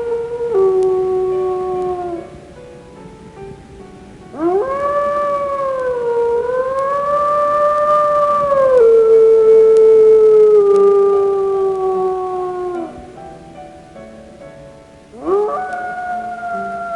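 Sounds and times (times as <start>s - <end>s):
dog howling: 0.0s - 2.3s, 4.3s - 13.0s, 15.2s - 16.9s.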